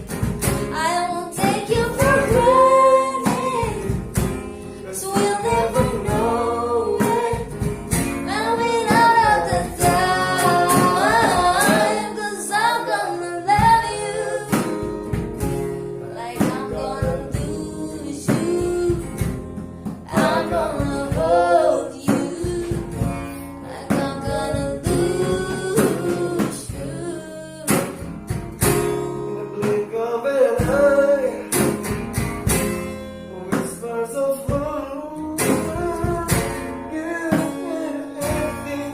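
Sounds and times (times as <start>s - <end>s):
acoustic guitar strumming: 0.0s - 38.9s
woman singing: 0.6s - 15.2s, 15.9s - 28.2s.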